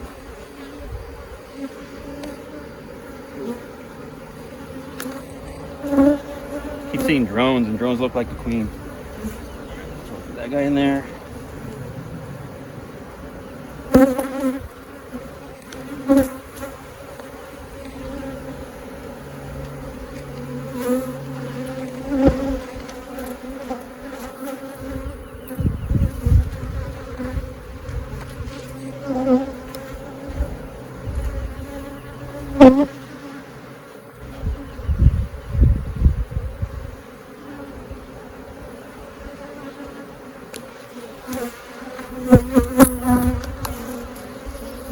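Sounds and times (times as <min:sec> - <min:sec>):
bees buzzing past microphone: 0:00.0 - 0:44.9
honeybees buzzing: 0:00.0 - 0:44.9
low rumbles: 0:07.6 - 0:14.0.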